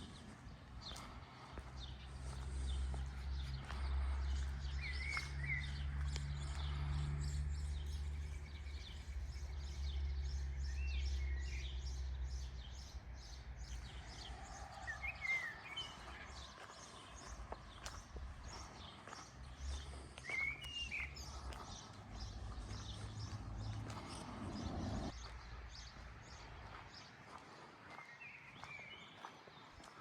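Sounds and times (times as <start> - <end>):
footsteps walking: 0.0 - 7.2, 13.7 - 30.0
bird chirps: 1.8 - 26.0.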